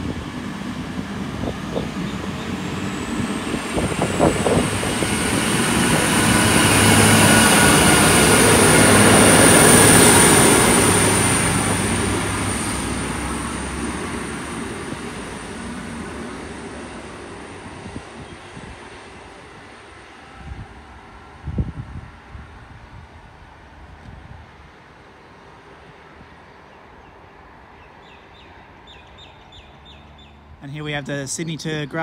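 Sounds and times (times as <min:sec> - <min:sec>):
train wheel noise: 0:00.0 - 0:21.6
railcar engine drone: 0:00.0 - 0:32.0.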